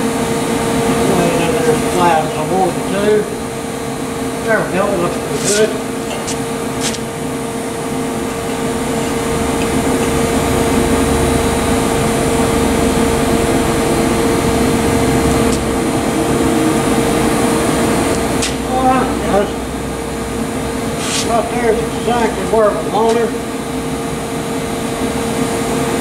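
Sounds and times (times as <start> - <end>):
mechanical hum and whir: 0.0 - 26.0.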